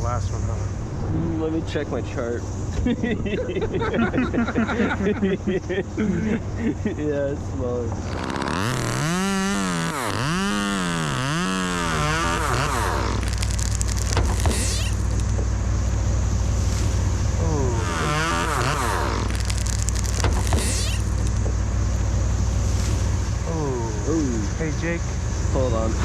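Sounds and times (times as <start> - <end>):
chainsaw revving: 2.8 - 6.9, 7.9 - 15.4, 16.6 - 21.5.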